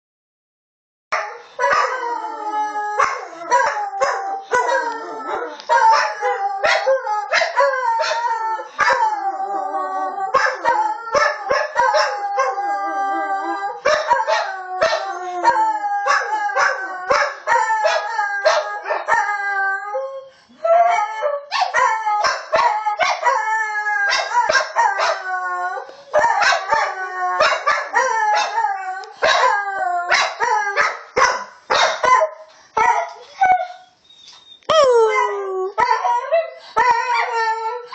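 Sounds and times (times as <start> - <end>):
dogs howling: 1.6 - 31.0
dogs yipping and barking: 10.3 - 12.5, 24.1 - 25.3, 26.1 - 37.7.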